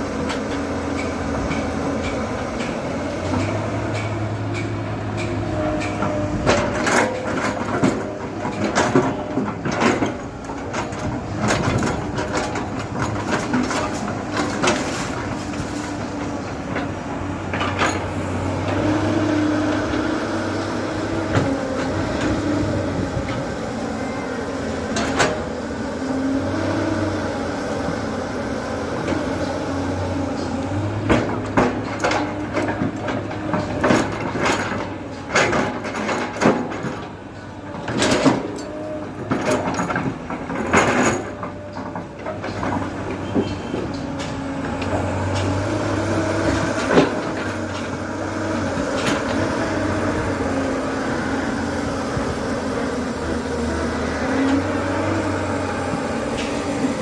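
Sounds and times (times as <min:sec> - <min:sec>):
diesel engine revving: 0:00.0 - 0:36.2, 0:42.2 - 0:57.0
metallic clanks and knocks: 0:00.2 - 0:18.8.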